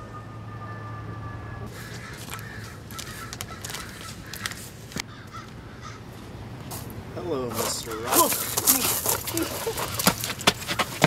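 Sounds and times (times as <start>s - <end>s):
harsh bird calls: 1.6s - 6.1s, 7.7s - 8.7s.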